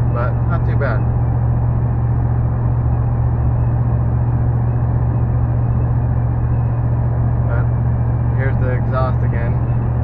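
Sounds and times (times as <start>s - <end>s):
low exhaust drone: 0.0s - 10.0s.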